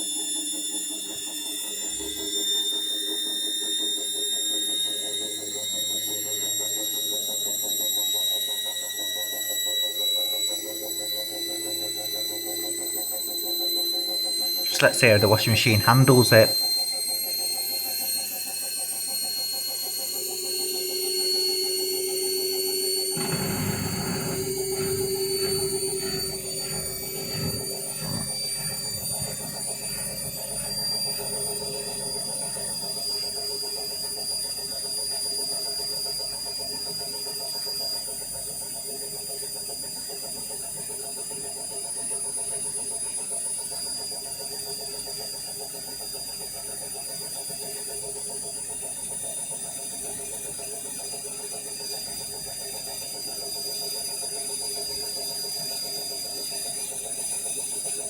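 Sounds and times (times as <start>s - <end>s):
washing machine motor whine: 17.7s - 36.2s
washing machine churning: 23.2s - 32.5s.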